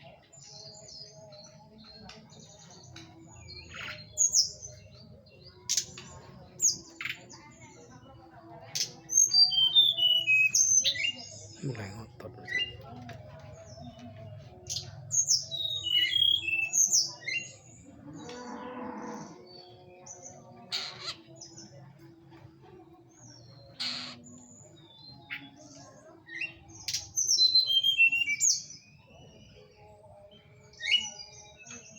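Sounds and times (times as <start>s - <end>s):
songbird whistled notes: 9.2s - 11.3s, 15.3s - 17.5s.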